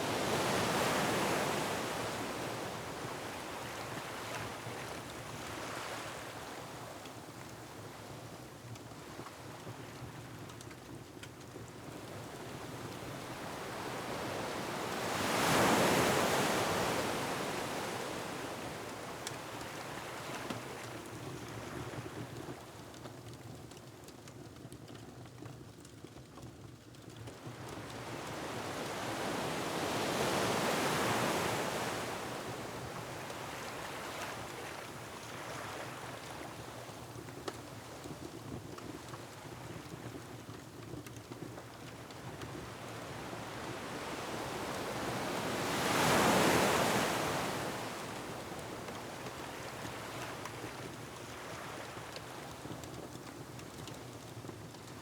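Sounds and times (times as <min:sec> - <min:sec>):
ocean waves: 0:13.4 - 0:18.8, 0:43.0 - 0:52.0
steady wind: 0:41.8 - 0:53.2.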